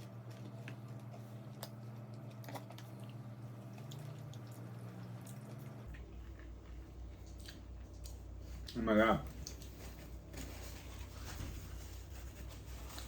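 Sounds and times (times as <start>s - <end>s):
person chewing and biting food: 0.0s - 8.8s.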